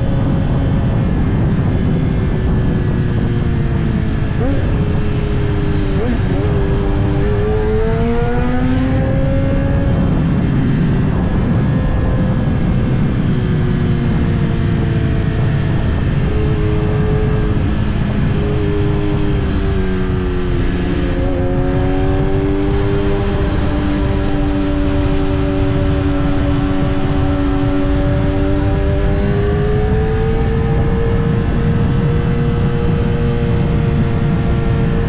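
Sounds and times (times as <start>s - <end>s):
motorcycle engine under way: 0.0s - 35.0s
wind on microphone: 0.0s - 35.0s.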